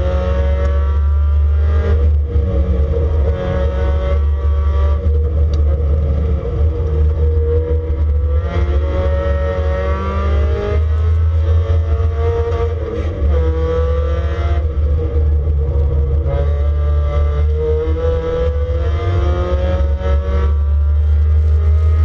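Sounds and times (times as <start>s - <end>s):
race car engine revving: 0.0s - 22.0s
heavy low rumble: 1.8s - 9.5s, 10.9s - 19.4s.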